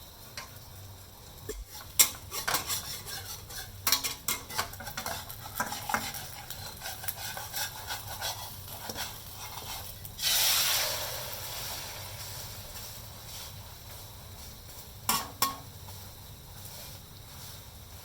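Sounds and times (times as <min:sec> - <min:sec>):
sizzling in hot oil: 0:00.0 - 0:18.0
utensil scraping a frying pan: 0:01.5 - 0:13.6.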